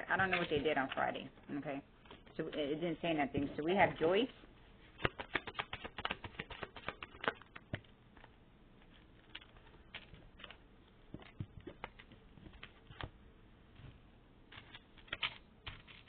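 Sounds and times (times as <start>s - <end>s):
cards being shuffled: 4.9s - 13.2s, 14.5s - 16.0s.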